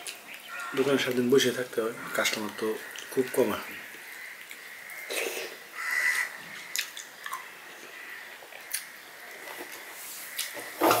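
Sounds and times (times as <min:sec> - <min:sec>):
man chewing: 0:00.0 - 0:00.7, 0:03.8 - 0:10.6.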